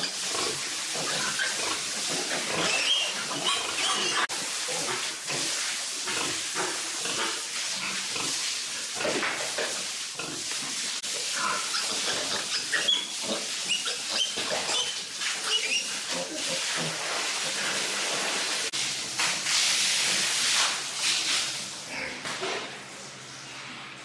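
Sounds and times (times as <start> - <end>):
pigs squealing and grunting: 0.0 - 5.1, 11.1 - 17.9.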